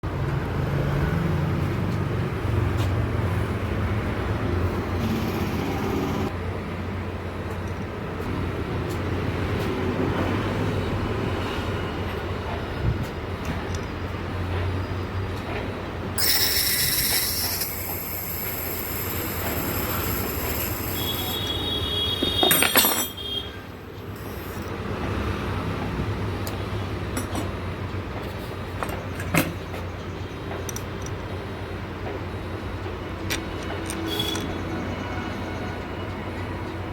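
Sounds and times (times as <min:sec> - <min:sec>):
compressor mechanical running noise: 0:00.1 - 0:22.4, 0:23.1 - 0:36.9
compressor squealing: 0:16.2 - 0:24.7.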